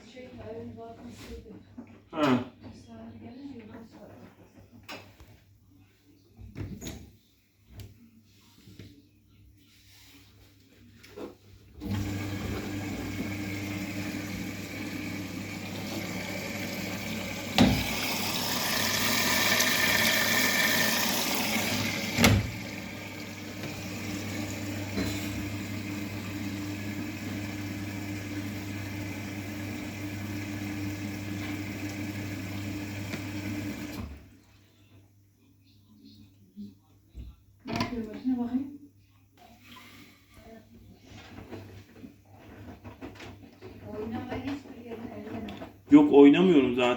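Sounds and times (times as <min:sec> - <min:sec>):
washing machine hum: 0:11.6 - 0:34.7, 0:41.0 - 0:46.9
water rushing into machine: 0:11.8 - 0:34.2.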